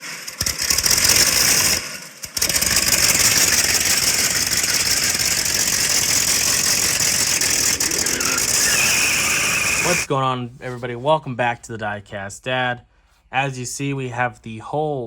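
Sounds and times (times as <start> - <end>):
loud engine running with rattle: 0.0 - 10.1.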